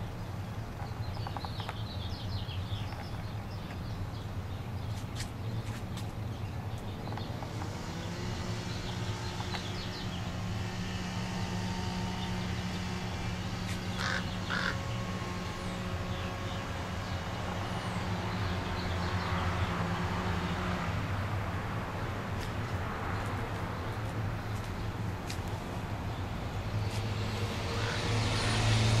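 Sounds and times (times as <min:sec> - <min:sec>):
steady low hum: 0:01.8 - 0:29.0
short bird calls: 0:13.6 - 0:14.9.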